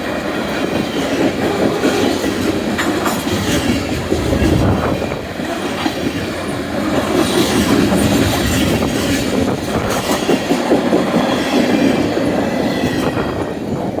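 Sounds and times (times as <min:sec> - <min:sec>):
freight train wheels clattering: 0:00.0 - 0:14.0.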